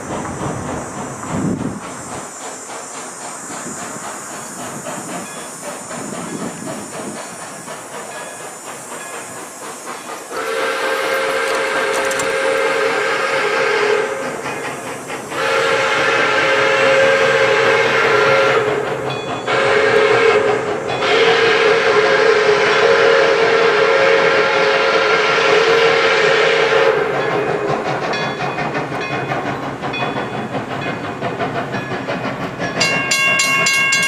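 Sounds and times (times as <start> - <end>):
moving steam train hissing: 0.0 - 34.0
steam whistle blowing a chord: 10.3 - 14.2, 15.4 - 18.8, 19.5 - 27.1.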